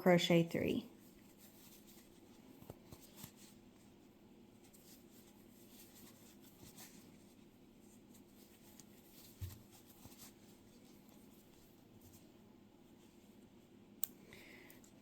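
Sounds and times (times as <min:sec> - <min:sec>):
crochet hook rustling yarn: 0:01.0 - 0:13.8.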